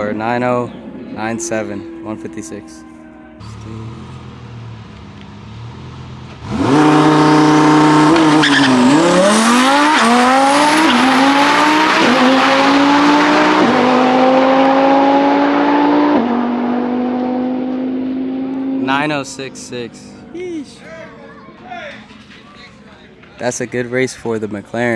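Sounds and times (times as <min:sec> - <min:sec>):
car engine revving and shifting gears: 0:00.2 - 0:19.2.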